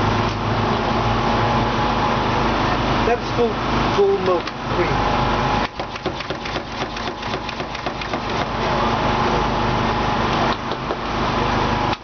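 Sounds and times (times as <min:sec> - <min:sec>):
small engine running: 0:05.7 - 0:09.1.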